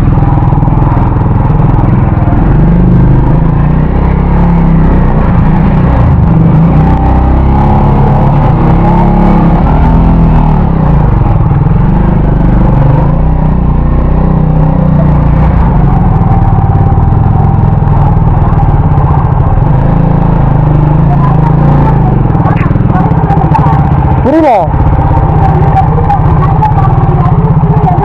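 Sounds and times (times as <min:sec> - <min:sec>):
motorcycle engine under load: 0:00.0 - 0:28.0.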